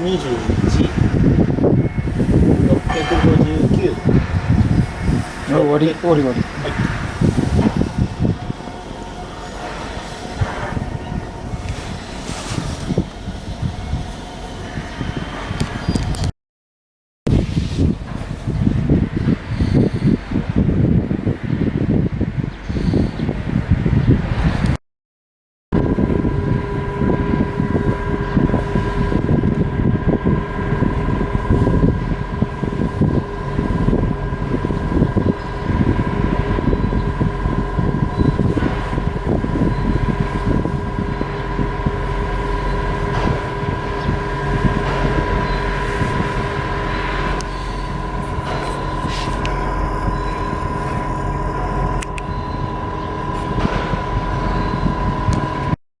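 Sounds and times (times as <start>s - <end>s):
ship diesel engine rumbling: 0.0s - 16.2s, 25.8s - 55.8s
high whine: 0.0s - 16.3s, 25.7s - 55.8s
machinery high-pitched tone and hum: 0.0s - 16.3s, 17.3s - 23.5s, 25.8s - 55.8s.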